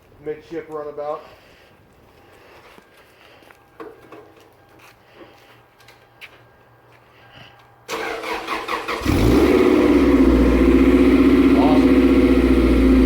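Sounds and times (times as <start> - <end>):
car engine idling: 8.0 - 13.0.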